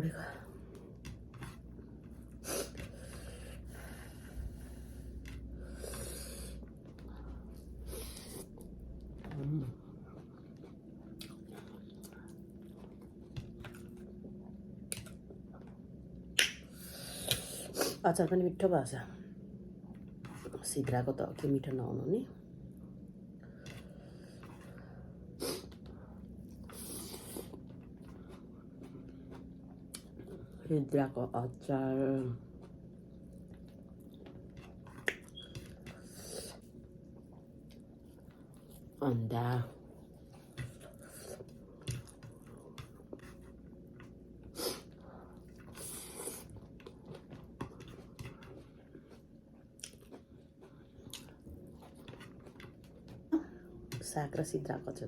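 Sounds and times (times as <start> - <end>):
low steady hum: 0.0 - 55.0
person chewing food: 0.5 - 17.8, 22.7 - 30.6, 32.4 - 39.0, 39.8 - 54.0.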